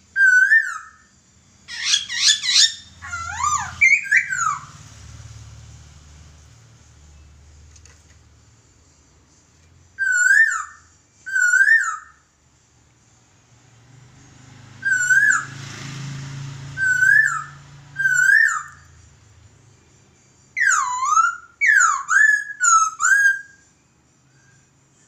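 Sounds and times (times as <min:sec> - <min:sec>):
bird singing loud whistles: 0:00.1 - 0:04.9, 0:09.9 - 0:12.3, 0:14.8 - 0:15.6, 0:16.8 - 0:19.1, 0:20.5 - 0:24.7.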